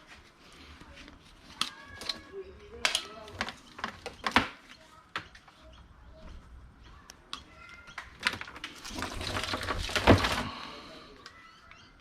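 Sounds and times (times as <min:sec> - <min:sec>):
rustling cables: 0:00.0 - 0:04.7, 0:07.7 - 0:11.4
clatter of plugs and wire: 0:08.0 - 0:10.5.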